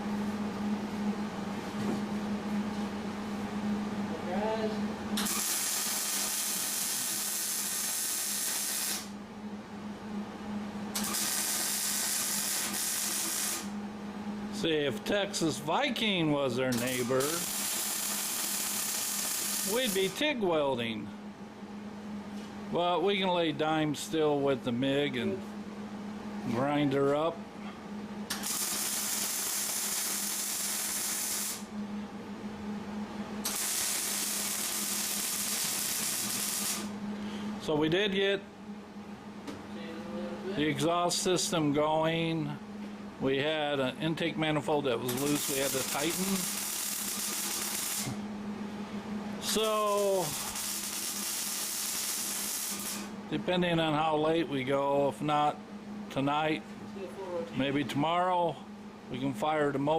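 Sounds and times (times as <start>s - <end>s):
low electrical hum: 0.0s - 59.9s
welder arc crackle and hiss: 5.2s - 9.2s, 11.0s - 13.7s, 16.7s - 20.2s, 28.3s - 31.7s, 33.5s - 36.9s, 45.0s - 48.2s, 49.4s - 53.1s.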